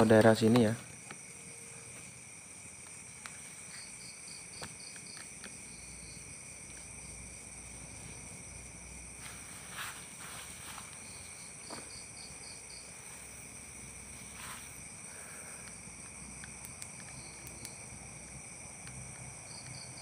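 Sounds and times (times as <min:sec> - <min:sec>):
crickets trilling: 0:00.0 - 0:20.0
pulsing insect chirping: 0:00.0 - 0:20.0.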